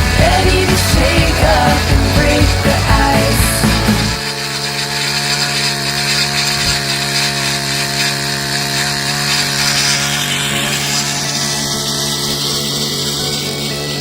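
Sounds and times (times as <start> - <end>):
tiller engine running: 0.0 - 14.0.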